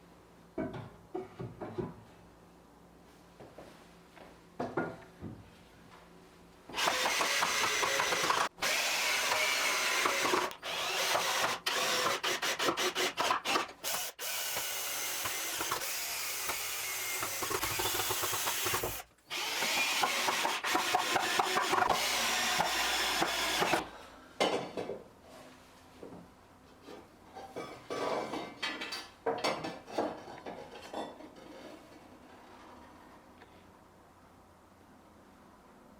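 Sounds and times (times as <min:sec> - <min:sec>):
power tool working wood: 0:06.8 - 0:23.8.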